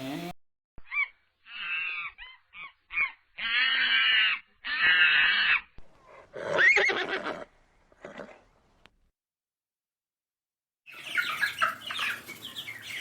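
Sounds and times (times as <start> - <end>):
animal calling: 0.8 - 5.7.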